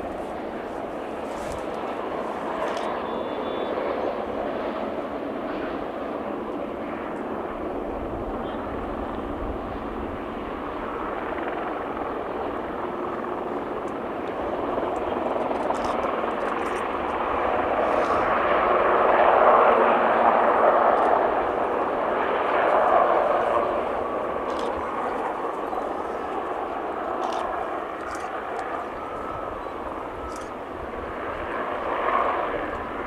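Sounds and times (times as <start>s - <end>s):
aircraft flying by: 14.3s - 33.0s.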